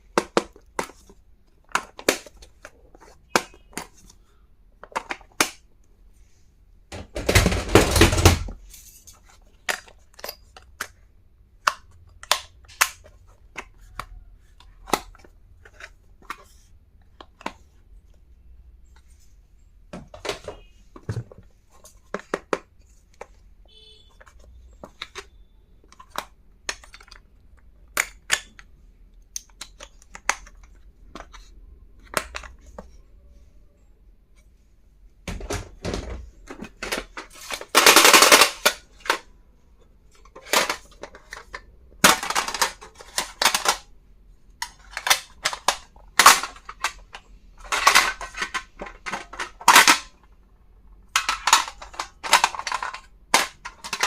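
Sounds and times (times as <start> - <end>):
packaging rustling and scraping: 36.4 - 39.2, 44.6 - 50.1.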